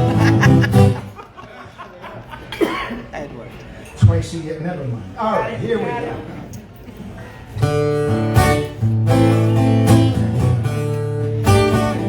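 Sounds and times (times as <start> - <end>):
acoustic guitar strumming chords: 0.0 - 1.1, 7.6 - 12.0.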